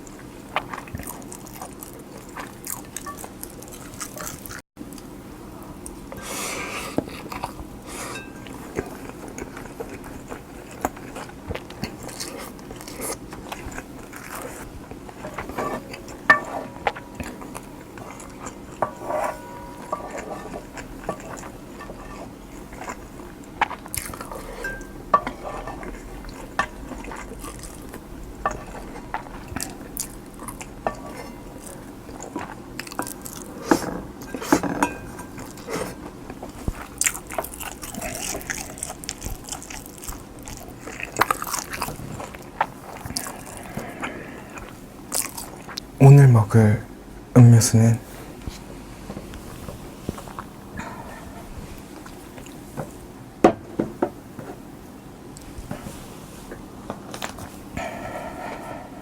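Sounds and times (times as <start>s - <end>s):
biting and chewing: 8.6s - 45.9s
metal spoon clinking on dish: 18.8s - 21.9s, 24.5s - 25.9s, 34.2s - 35.5s.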